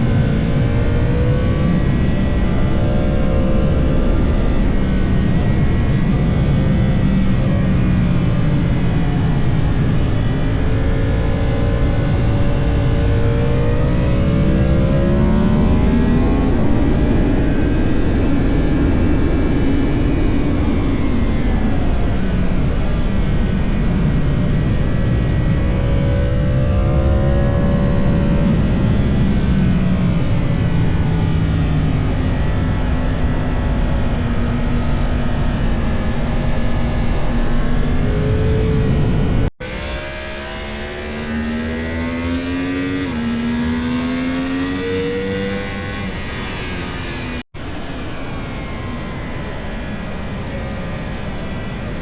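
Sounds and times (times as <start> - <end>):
motorcycle engine accelerating: 0.0 - 52.0.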